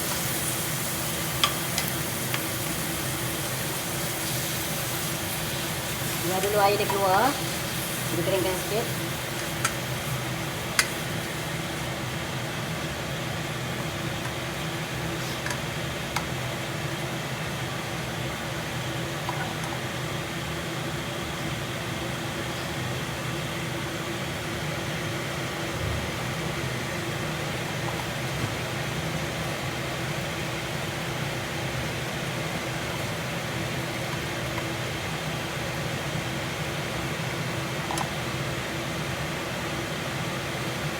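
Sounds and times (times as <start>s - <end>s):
kitchen exhaust fan droning: 0.0s - 40.9s.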